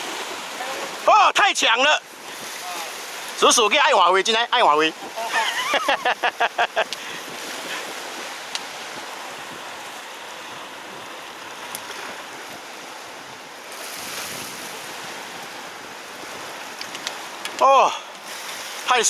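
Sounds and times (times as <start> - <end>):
surf washing against rocks: 0.0 - 19.0
faint clicks: 6.8 - 7.0, 16.7 - 17.6.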